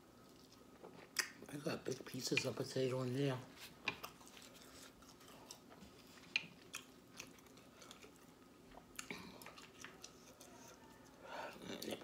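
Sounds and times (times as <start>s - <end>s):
person chewing: 3.8s - 12.0s.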